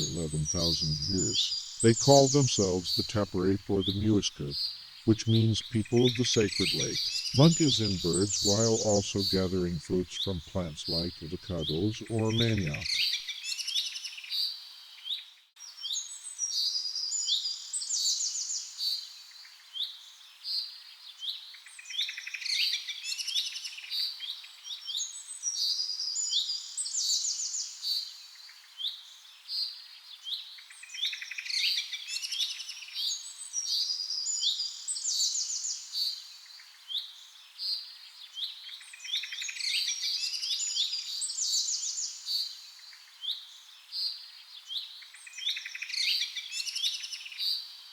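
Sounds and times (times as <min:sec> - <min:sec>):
birds chirping and trilling: 0:00.0 - 0:15.4.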